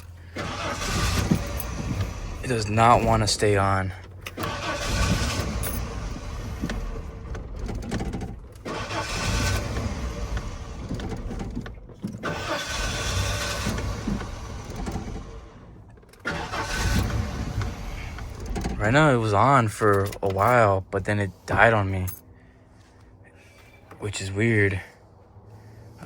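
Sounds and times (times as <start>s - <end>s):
engine cranking and starting: 0.0s - 24.0s.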